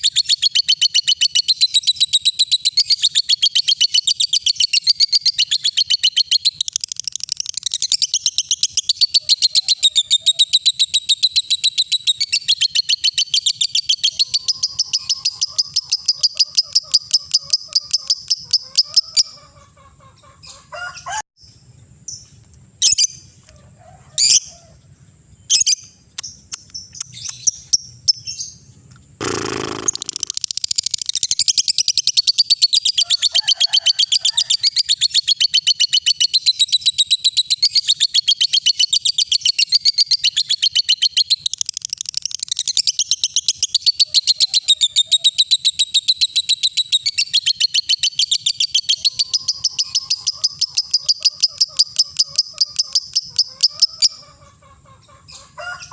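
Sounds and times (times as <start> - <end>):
lovebird chirping and trilling: 0.0 - 19.5, 22.1 - 23.3, 24.2 - 24.5, 25.4 - 33.4, 34.2 - 54.4
short noisy burst: 29.2 - 30.4.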